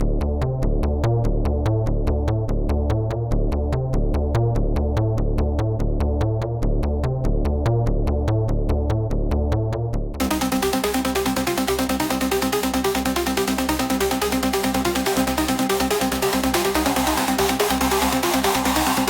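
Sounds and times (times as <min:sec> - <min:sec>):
electronic music with drum beat: 0:10.2 - 0:19.0.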